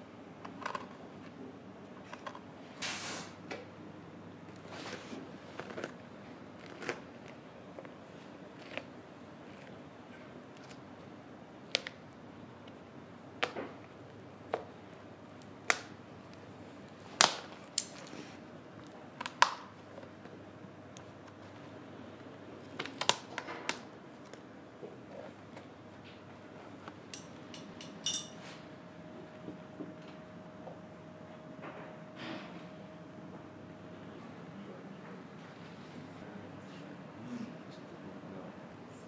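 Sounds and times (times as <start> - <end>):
hand tools clicking and knocking: 27.1 - 28.4.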